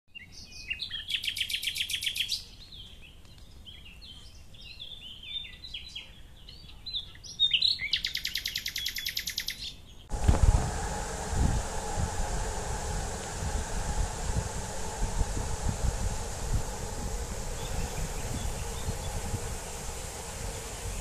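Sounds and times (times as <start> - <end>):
bird chirps and twitters: 0.2 - 9.8
songbird fast trills: 10.8 - 21.0.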